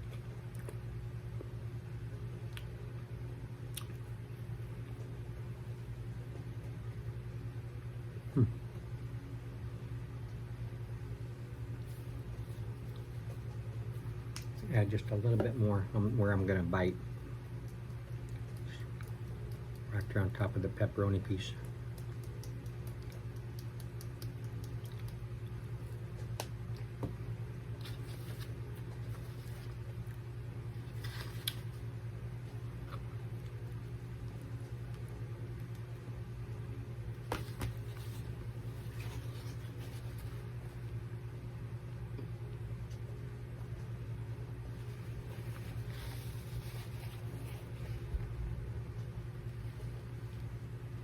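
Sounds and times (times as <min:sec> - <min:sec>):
person chewing food: 0:00.0 - 0:01.5, 0:21.7 - 0:27.0
low background hum: 0:00.0 - 0:51.0.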